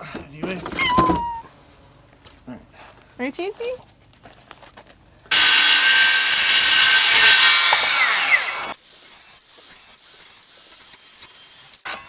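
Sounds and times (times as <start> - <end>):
power saw cutting wood: 5.3 - 12.0.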